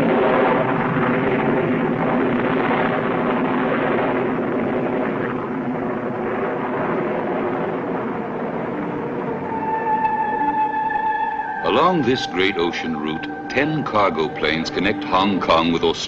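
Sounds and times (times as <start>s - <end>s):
airplane engines droning: 0.0s - 16.0s.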